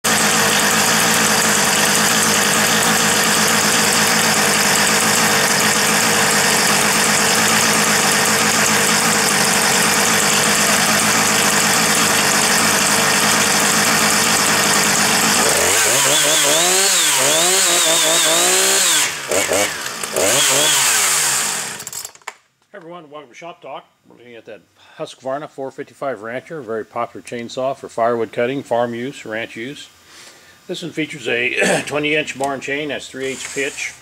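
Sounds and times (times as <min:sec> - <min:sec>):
chainsaw engine idling and revving: 0:00.0 - 0:22.2.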